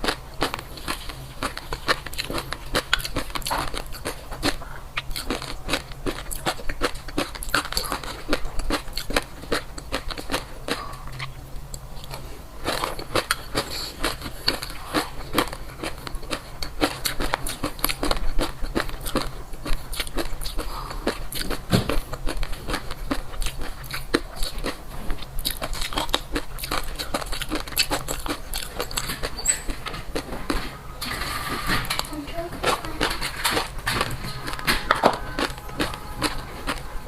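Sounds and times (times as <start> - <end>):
chewing and crunching food: 0.0 - 37.0.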